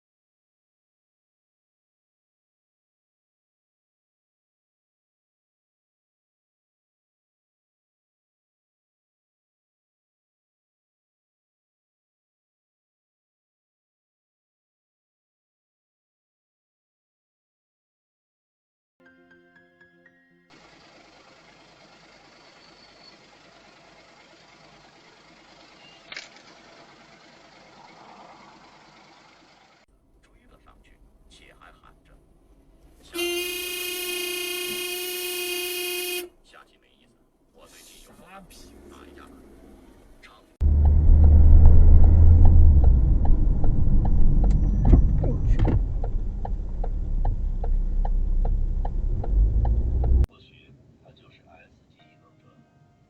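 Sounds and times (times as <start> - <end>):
car road and engine noise: 20.5 - 29.8, 38.1 - 50.3
steady ticking: 45.7 - 50.3.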